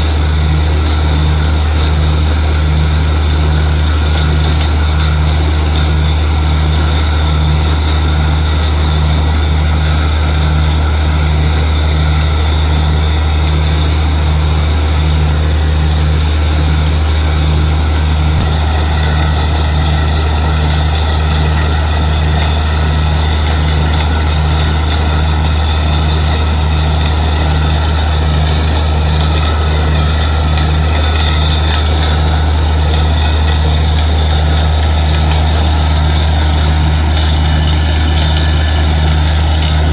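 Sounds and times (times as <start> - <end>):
drilling rig engine drone: 0.0 - 39.9.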